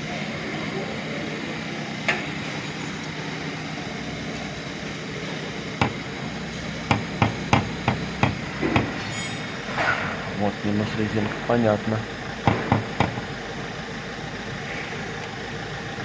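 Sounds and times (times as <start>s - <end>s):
steady low hum: 0.0s - 16.0s
sharp knocks: 5.8s - 6.0s, 6.9s - 9.0s, 12.4s - 13.3s.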